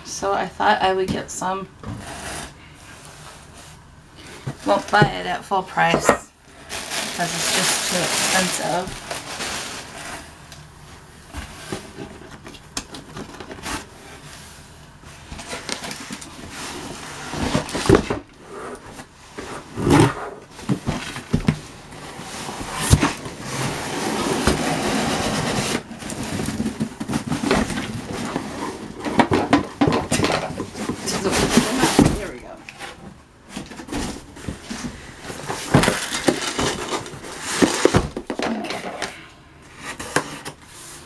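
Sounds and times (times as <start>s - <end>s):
cardboard rustling and scraping: 6.6s - 10.4s, 11.3s - 39.1s.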